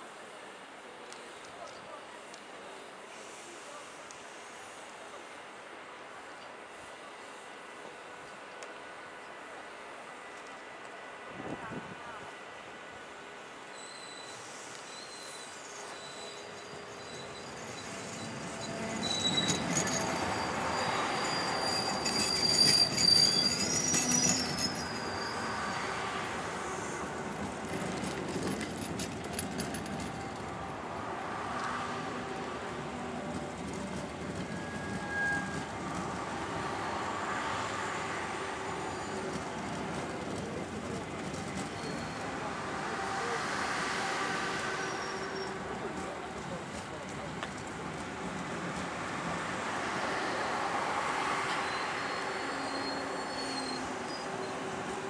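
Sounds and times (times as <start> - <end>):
train wheels rumbling: 15.7 - 55.0.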